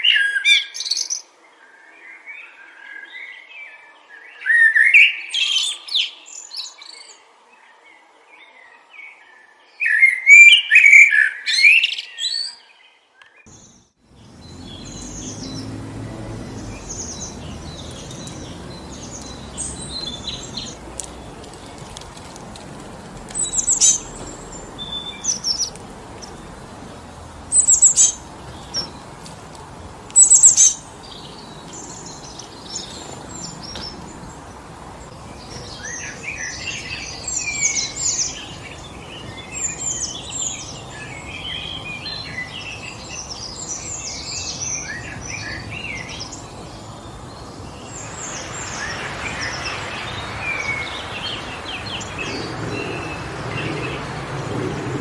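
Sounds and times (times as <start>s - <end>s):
wind through trees: 0.0s - 55.0s
chorus of chirping birds: 7.8s - 55.0s
loud sharp bird calls: 13.5s - 55.0s.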